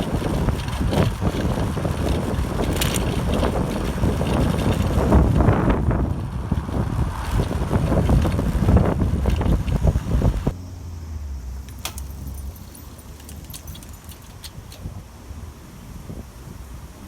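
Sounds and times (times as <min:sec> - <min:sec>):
strong wind buffeting microphone: 0:00.0 - 0:10.6.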